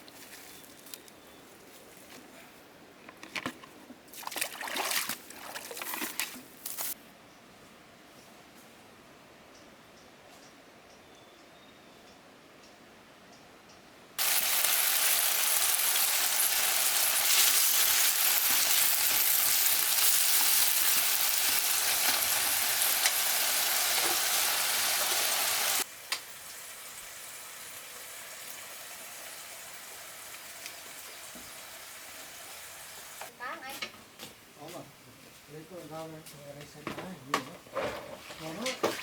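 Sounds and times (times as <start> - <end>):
food sizzling in hot oil: 14.2 - 33.3.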